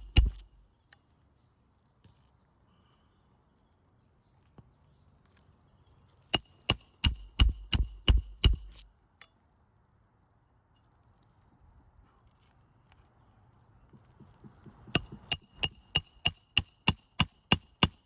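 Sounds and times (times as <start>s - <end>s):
hammer striking metal: 0.0s - 0.5s, 15.0s - 18.0s.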